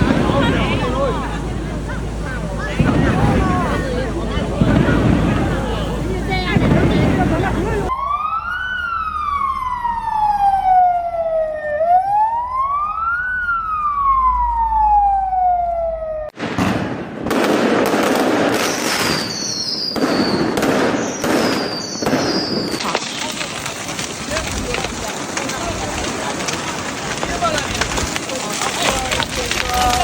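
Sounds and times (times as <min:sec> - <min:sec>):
crackling fireworks: 0:00.0 - 0:11.1, 0:12.5 - 0:30.0
emergency vehicle siren wailing: 0:02.9 - 0:16.4
high falling firework whistles: 0:18.5 - 0:22.8.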